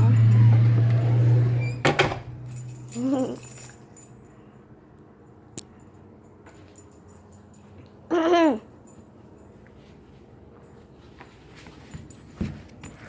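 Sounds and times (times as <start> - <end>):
dog whining: 2.9 - 3.6, 8.1 - 8.7.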